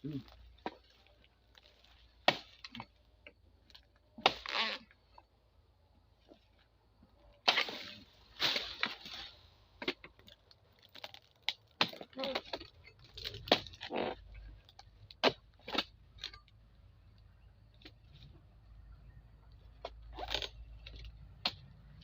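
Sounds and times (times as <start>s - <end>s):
fronds cracking and crunching: 0.0s - 5.3s, 7.2s - 22.0s.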